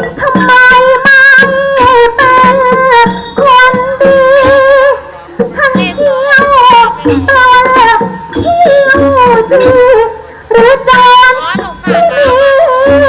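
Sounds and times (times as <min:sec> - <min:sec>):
person singing with ornaments: 0:00.0 - 0:05.0, 0:05.6 - 0:13.0
instrumental accompaniment: 0:00.0 - 0:13.0.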